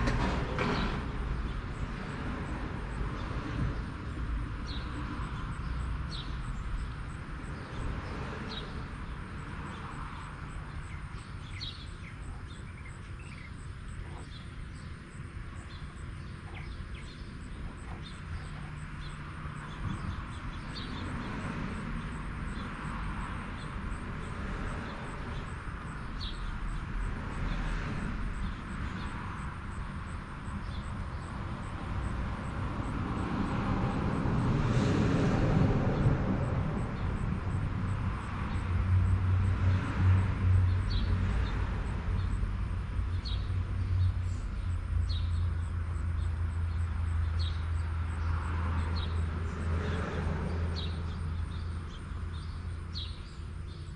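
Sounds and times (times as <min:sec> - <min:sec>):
birds chirping: 0:03.2 - 0:32.6, 0:43.0 - 0:53.9
vehicle passing: 0:13.9 - 0:53.9.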